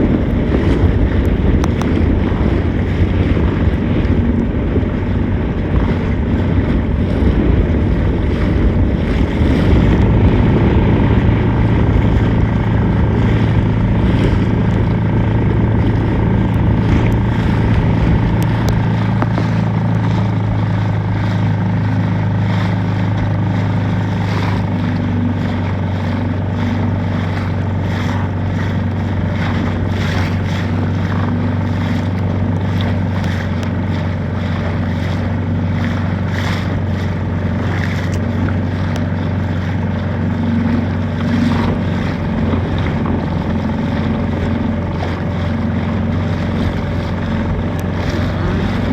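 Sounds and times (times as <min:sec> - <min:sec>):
motorboat engine running: 0:00.0 - 0:48.9
wind noise on microphone: 0:00.0 - 0:48.9.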